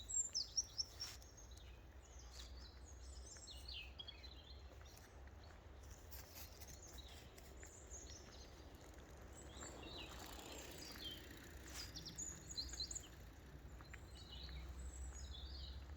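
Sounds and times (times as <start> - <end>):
birds chirping: 6.8 - 15.9.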